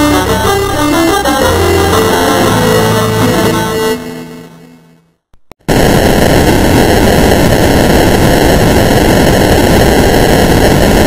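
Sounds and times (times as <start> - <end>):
loud white noise hiss: 5.7 - 11.0.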